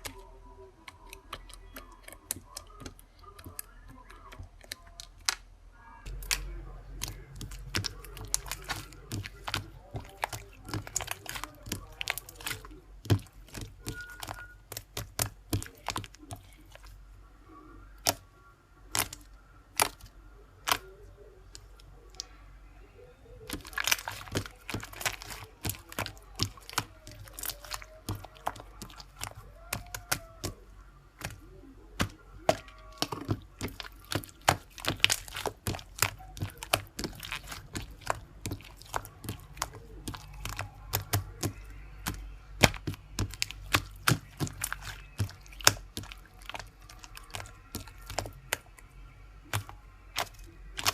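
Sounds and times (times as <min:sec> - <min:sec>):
small objects clicking and knocking: 0:23.5 - 0:30.6, 0:31.2 - 0:48.8.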